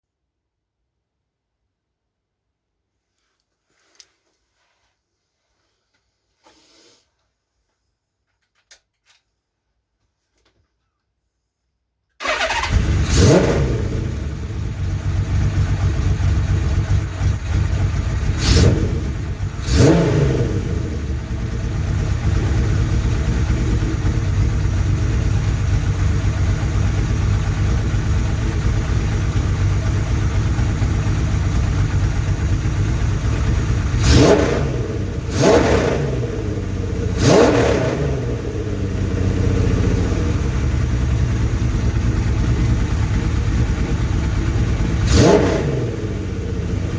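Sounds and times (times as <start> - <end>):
motorcycle engine idling and revving: 12.2 - 46.9.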